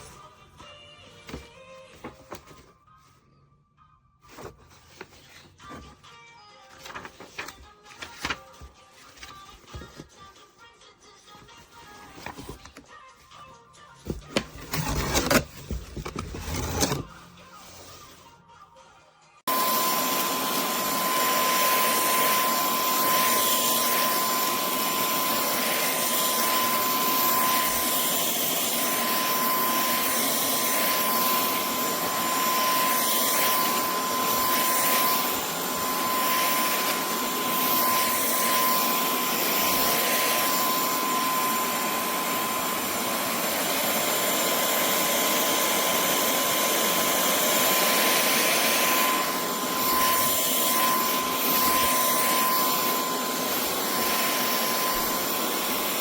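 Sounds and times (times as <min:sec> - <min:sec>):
vacuum cleaner running: 0:19.5 - 0:56.0.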